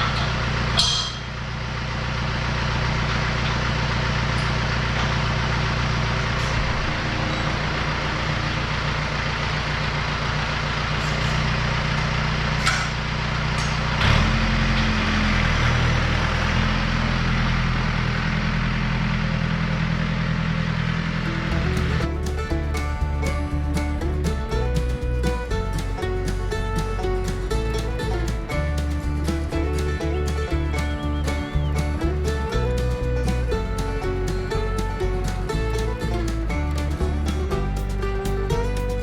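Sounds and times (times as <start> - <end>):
tractor diesel engine running: 0.0 - 39.0.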